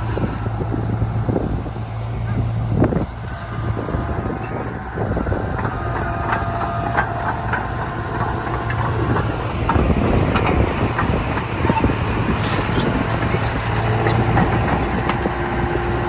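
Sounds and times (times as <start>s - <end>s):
bulldozer diesel engine running: 0.0s - 16.0s
metallic squeaks and clinks: 11.7s - 14.6s.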